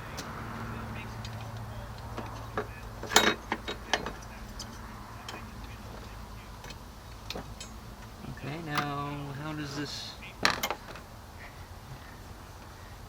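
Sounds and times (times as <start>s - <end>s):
metal clank: 2.6s - 5.4s, 6.6s - 7.9s, 10.4s - 11.0s.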